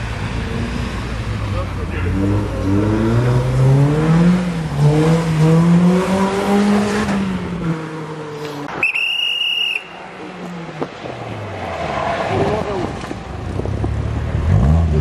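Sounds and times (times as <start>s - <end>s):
rally car engine revving: 0.0s - 8.5s, 11.7s - 15.0s.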